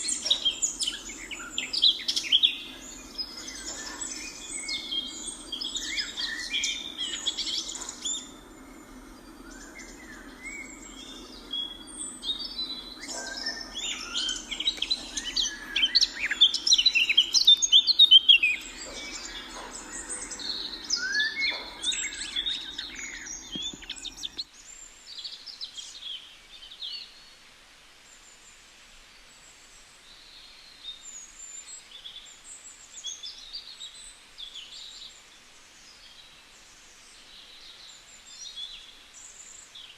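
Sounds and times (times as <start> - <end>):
steady low hum: 0.0 - 24.4
birds chirping and calling: 0.0 - 24.5.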